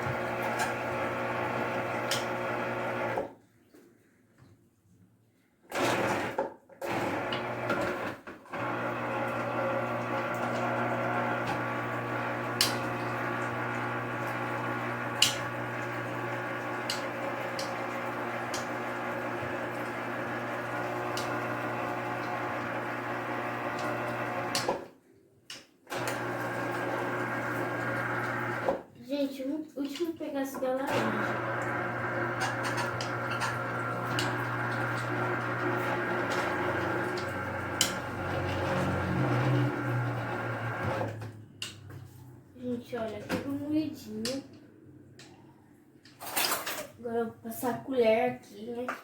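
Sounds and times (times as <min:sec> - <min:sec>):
electric juicer motor humming: 0:00.0 - 0:03.3, 0:05.7 - 0:24.8, 0:25.9 - 0:28.8, 0:30.9 - 0:41.3.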